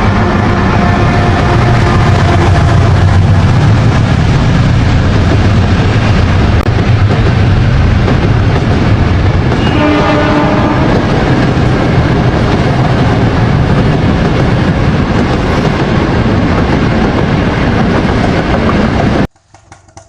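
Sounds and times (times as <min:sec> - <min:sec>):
train running: 0:00.0 - 0:20.0
short train horn tone: 0:09.6 - 0:11.0.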